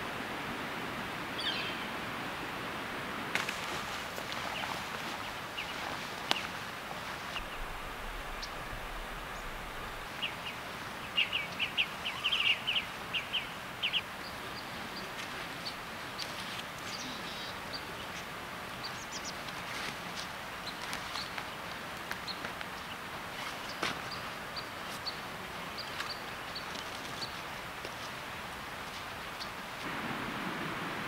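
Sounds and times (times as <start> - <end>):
steady outdoor hiss: 0.0 - 31.0.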